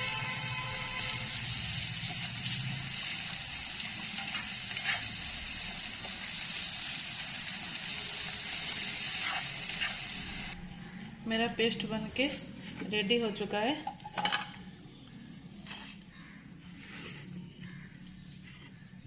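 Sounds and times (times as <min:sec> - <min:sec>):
tomatoes sizzling in oil: 0:00.0 - 0:10.6
spatula stirring and scraping: 0:03.9 - 0:05.4.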